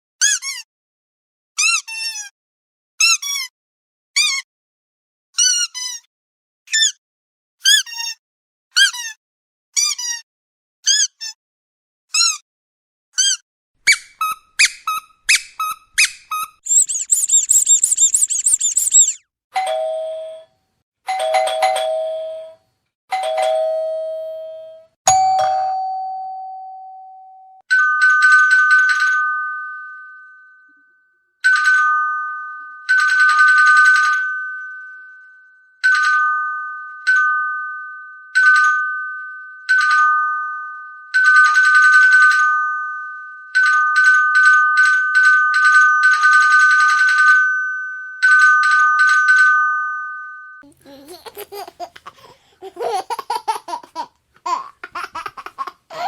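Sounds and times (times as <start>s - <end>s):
doorbell chime ringing: 23.2s - 27.6s.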